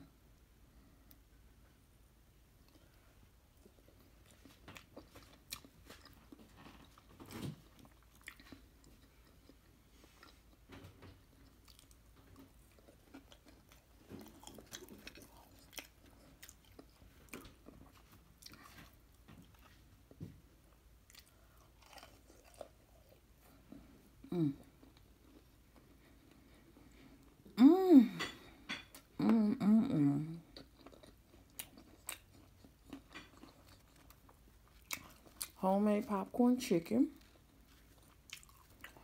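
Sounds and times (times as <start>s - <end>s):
person chewing crunchy food: 3.6s - 20.2s, 21.0s - 27.2s, 30.4s - 35.6s, 37.2s - 39.0s.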